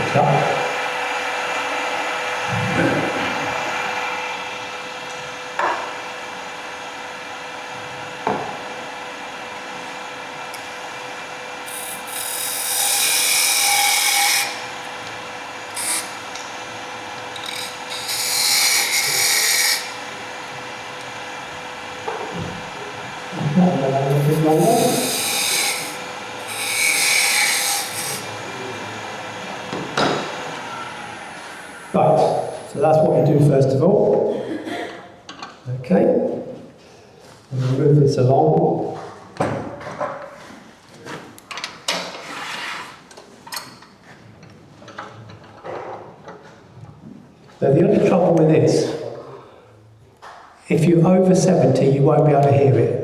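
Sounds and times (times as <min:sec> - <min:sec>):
wood lathe cutting wood: 0:10.8 - 0:21.9, 0:22.7 - 0:32.4
tool scraping spinning wood: 0:11.6 - 0:20.4, 0:22.1 - 0:30.6.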